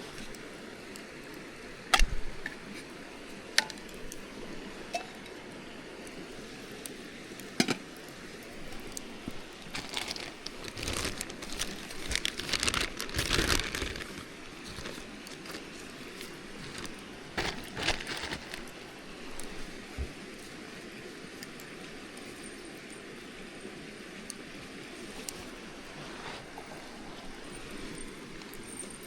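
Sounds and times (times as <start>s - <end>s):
rustling and crinkling: 8.6s - 20.6s, 25.0s - 29.0s.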